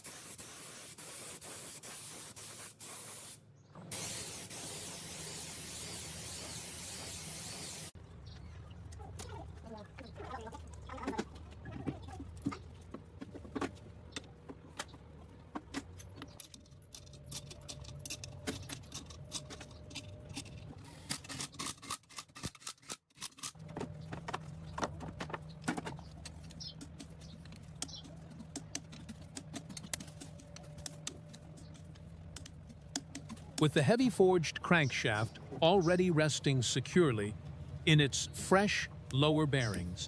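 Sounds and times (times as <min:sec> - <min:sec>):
small metal parts clinking: 0:15.9 - 0:23.6
steady low hum: 0:23.6 - 0:40.0.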